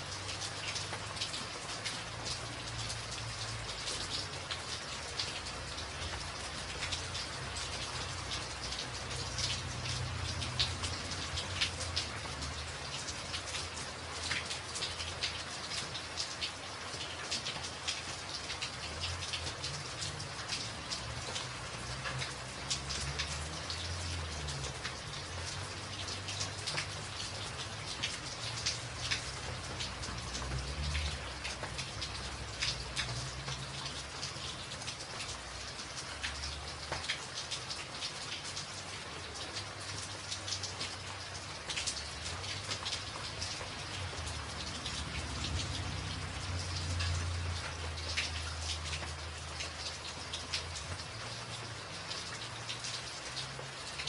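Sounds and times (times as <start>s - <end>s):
rain on a tin roof: 0.0s - 54.0s.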